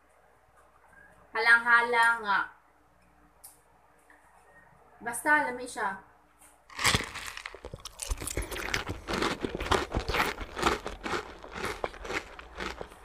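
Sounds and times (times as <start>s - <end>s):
crunching mango bites: 6.7s - 13.0s.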